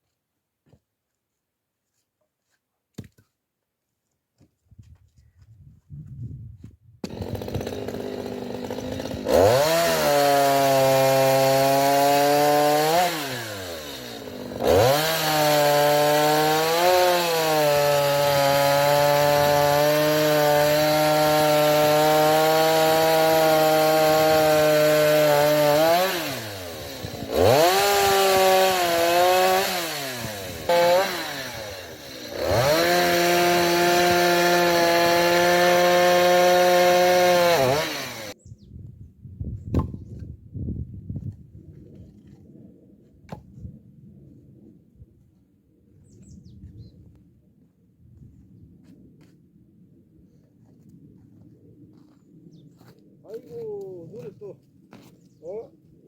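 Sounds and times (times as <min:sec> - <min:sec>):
chainsaw cutting logs: 0:07.0 - 0:38.4.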